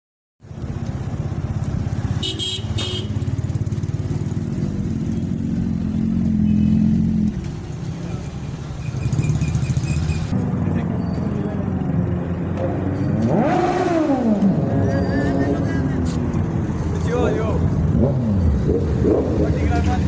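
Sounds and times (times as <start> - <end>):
motorcycle engine running: 0.4 - 7.4.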